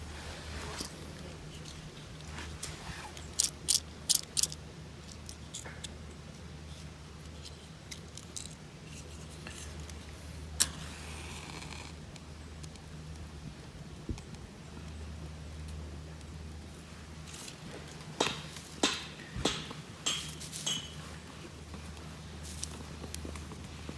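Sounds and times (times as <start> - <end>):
low steady hum: 0.0 - 23.9
sharp metallic clinks: 18.2 - 21.0.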